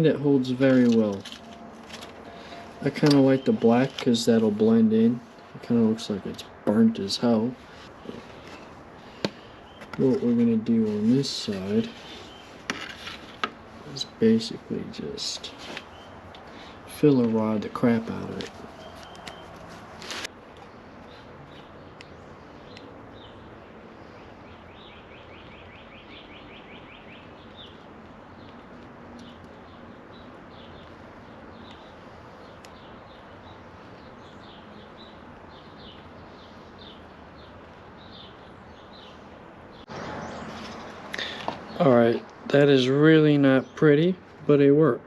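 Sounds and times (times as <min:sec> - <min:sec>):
steady low hiss: 0:00.0 - 0:22.6
birds chirping: 0:00.0 - 0:45.0.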